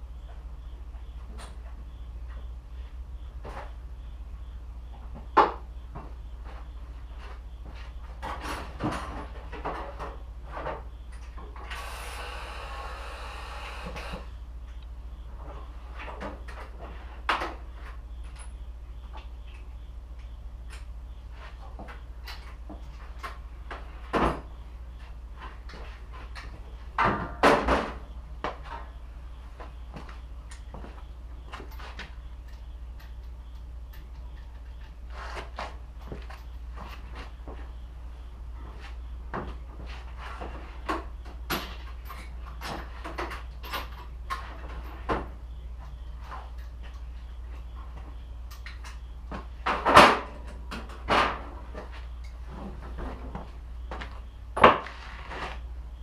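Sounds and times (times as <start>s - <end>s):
steady low hum: 0.0s - 56.0s
objects clunking: 5.0s - 11.7s.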